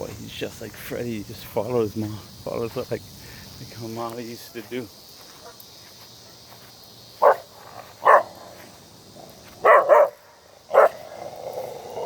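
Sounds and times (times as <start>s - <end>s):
insects chirring: 0.0s - 12.0s
dog barking: 7.2s - 8.4s, 9.6s - 11.0s.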